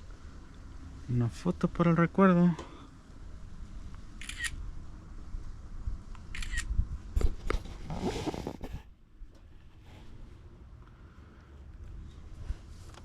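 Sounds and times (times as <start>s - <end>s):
rustle: 0.0s - 13.0s
camera shutter: 4.2s - 4.6s, 6.3s - 6.7s.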